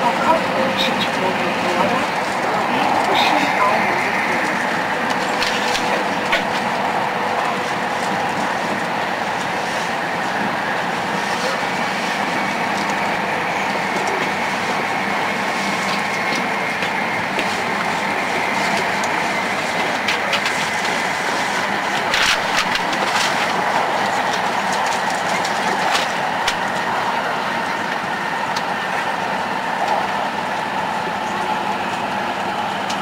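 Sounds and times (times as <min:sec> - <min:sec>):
high-speed train rumble and rush: 0:00.0 - 0:33.0.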